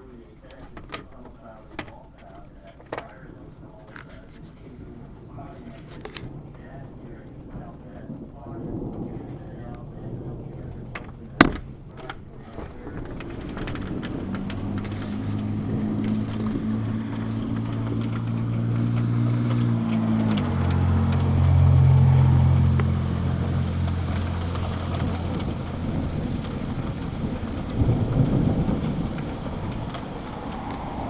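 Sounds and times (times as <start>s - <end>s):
loud rough rumble: 0.0s - 31.0s
steady rain: 0.0s - 31.0s
vehicle engine humming: 0.0s - 31.0s.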